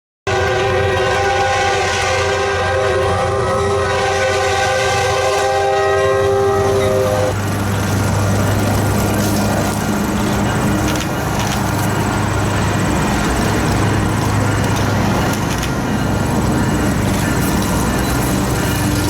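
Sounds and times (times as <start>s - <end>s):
locomotive air horn: 0.3s - 7.5s
locomotive engine rumbling: 0.3s - 19.0s.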